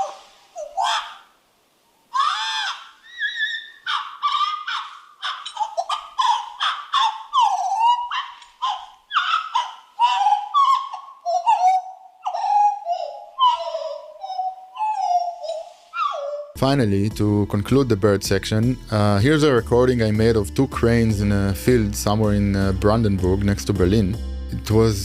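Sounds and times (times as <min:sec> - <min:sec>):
birds calling harshly: 0:02.2 - 0:16.6.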